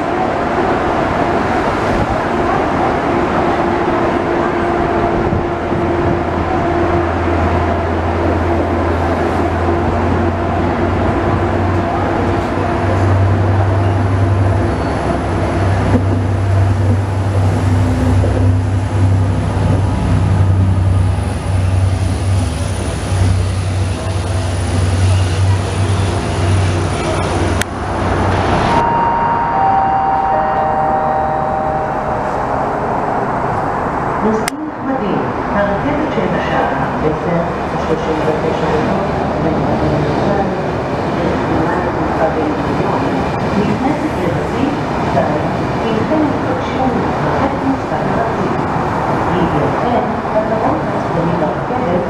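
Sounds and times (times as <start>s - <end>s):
train coaches rumbling: 0.0s - 52.0s
deep diesel engine drone: 4.9s - 34.4s.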